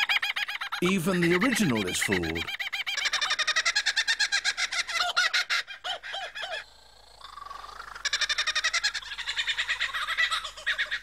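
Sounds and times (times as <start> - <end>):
lyrebird singing: 0.8 - 3.1.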